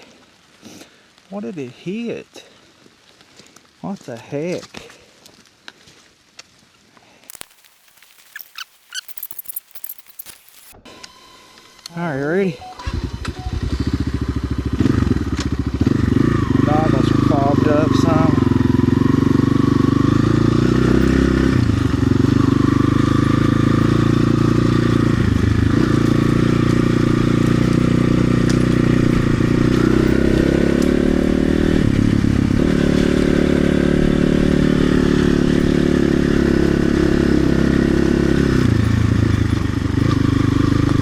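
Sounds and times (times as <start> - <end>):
dirt bike engine running: 11.9 - 41.0.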